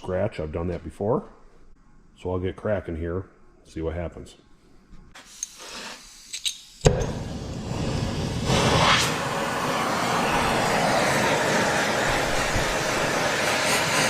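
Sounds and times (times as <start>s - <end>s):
gas torch igniting pop: 6.4s - 9.2s
torch flame rushing: 6.8s - 14.0s.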